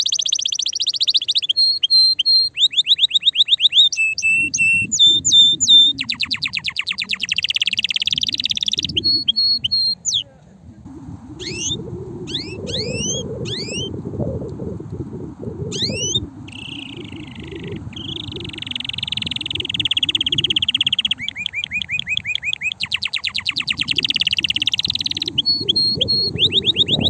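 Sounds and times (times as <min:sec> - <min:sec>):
canary singing trills: 0:00.0 - 0:10.3, 0:11.4 - 0:13.9, 0:15.7 - 0:27.0
low rumble: 0:10.6 - 0:20.8
short rising chirps: 0:11.1 - 0:13.9, 0:15.7 - 0:27.0.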